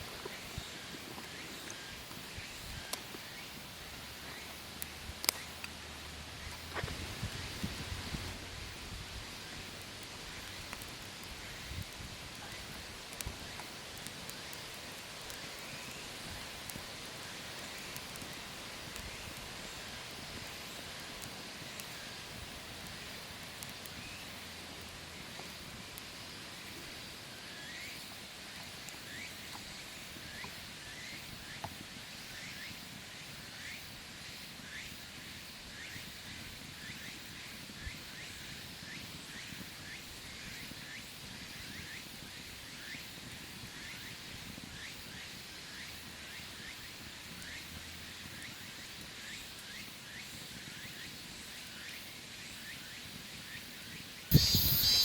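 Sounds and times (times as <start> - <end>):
steady hiss: 0.0 - 55.0
animal chirping: 54.3 - 55.0
sharp clicks: 54.3 - 55.0.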